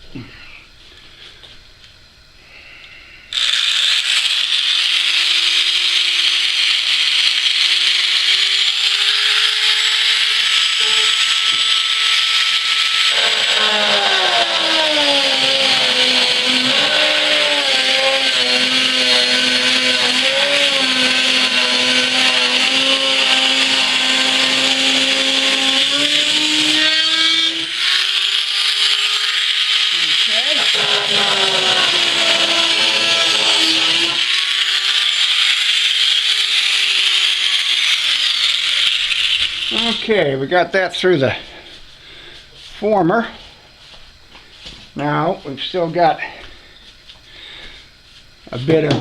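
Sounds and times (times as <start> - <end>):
rotary tool cutting with high whine: 3.3 - 40.3.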